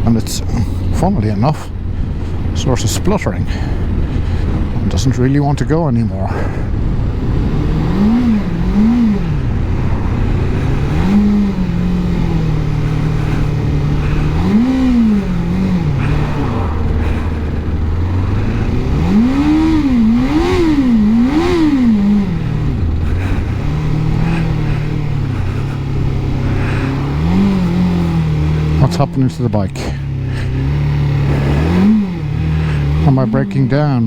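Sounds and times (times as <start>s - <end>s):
motorcycle engine revving: 0.0s - 34.0s
wind noise: 1.6s - 28.7s.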